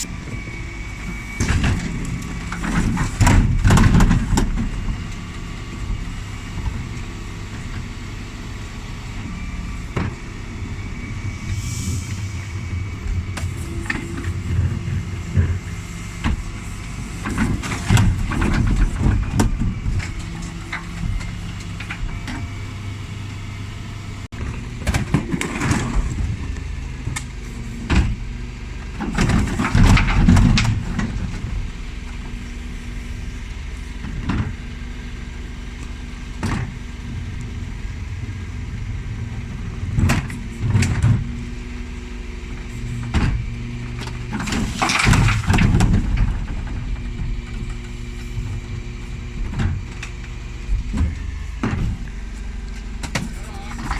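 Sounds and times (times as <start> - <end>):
diesel engine running: 0.0 - 53.9
wheelie bins clattering and banging: 1.3 - 5.2, 12.0 - 22.4, 24.4 - 33.0, 35.9 - 53.9.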